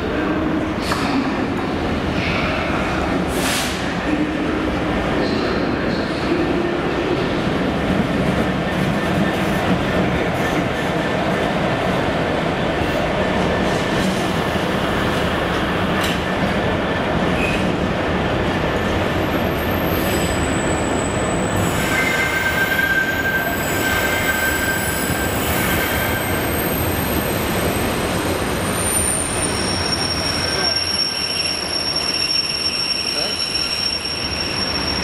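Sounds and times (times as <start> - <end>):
high wheel squeal: 19.8 - 28.0, 28.6 - 35.0.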